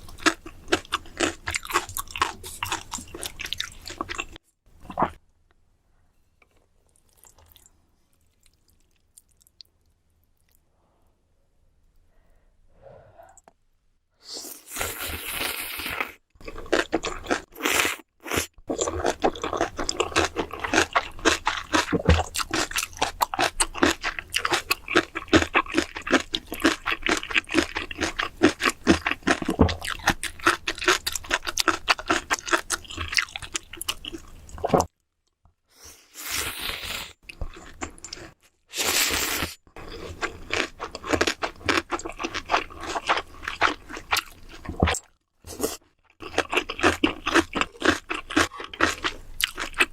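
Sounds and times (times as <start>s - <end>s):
crunchy chewing: 0.0s - 5.2s, 15.4s - 34.9s, 37.2s - 49.9s.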